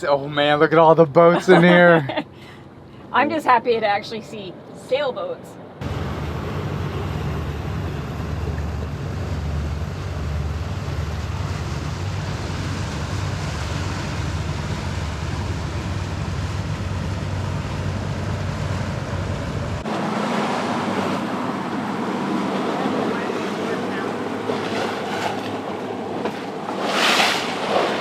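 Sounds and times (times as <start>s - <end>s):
water rushing around boat: 5.8s - 28.0s.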